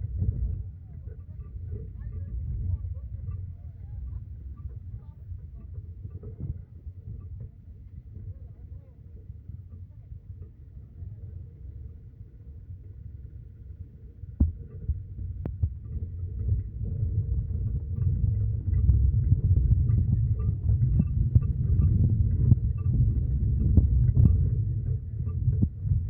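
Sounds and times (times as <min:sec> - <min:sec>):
road vehicle rumble: 0:13.2 - 0:26.0.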